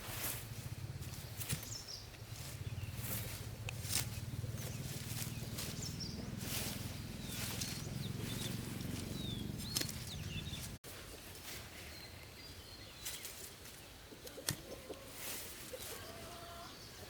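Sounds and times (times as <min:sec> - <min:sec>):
small birds chirping: 0:00.2 - 0:10.8, 0:11.4 - 0:17.0
low rough rumbling: 0:00.3 - 0:10.8.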